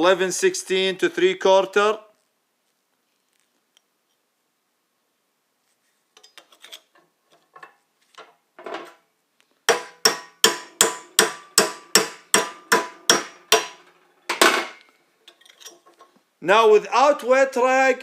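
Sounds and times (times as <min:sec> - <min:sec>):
hammer striking metal: 0:09.7 - 0:14.8.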